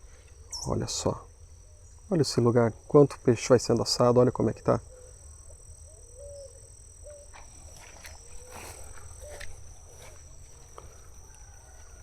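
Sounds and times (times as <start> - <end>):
low chirping calls: 0.0 - 2.2, 4.8 - 9.9
crickets droning: 0.0 - 12.0.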